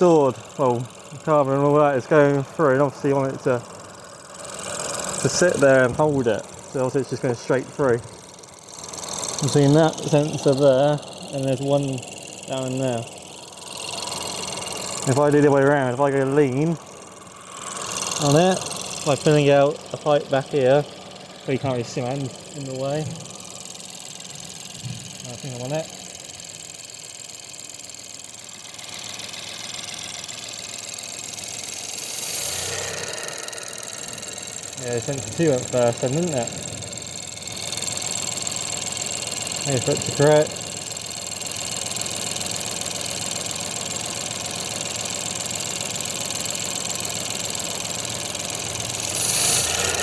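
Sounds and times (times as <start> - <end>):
car engine idling: 0.0 - 50.0
hiss of air: 28.8 - 37.3, 48.9 - 50.0.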